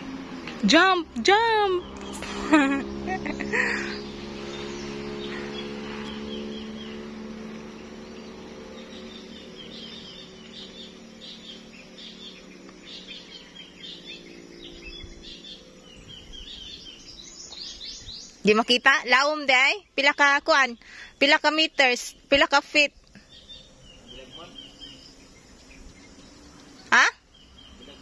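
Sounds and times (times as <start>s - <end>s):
steady low hum: 0.0s - 18.4s
small birds chirping: 0.0s - 28.0s.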